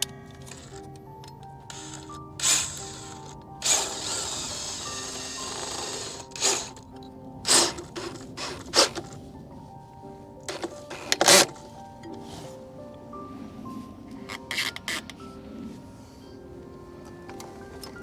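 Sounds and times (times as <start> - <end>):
background music: 0.0 - 18.0
mechanical whirr: 1.7 - 6.8, 7.5 - 9.2.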